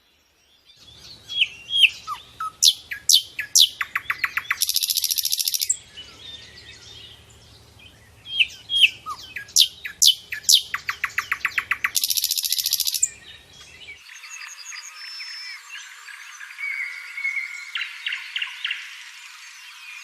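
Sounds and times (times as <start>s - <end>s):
songbirds calling: 0.0s - 20.0s
frogs chirping: 1.4s - 5.9s, 8.4s - 13.2s.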